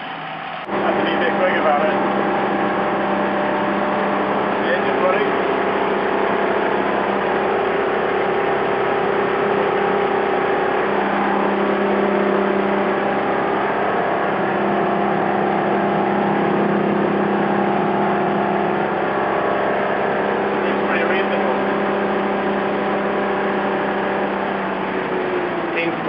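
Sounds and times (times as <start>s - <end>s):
boat engine running: 0.0s - 26.0s.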